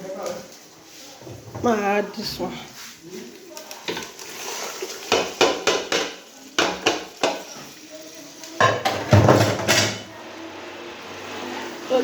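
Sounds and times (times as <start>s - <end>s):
pots and metal utensils clattering: 0.0s - 2.5s, 3.2s - 10.2s.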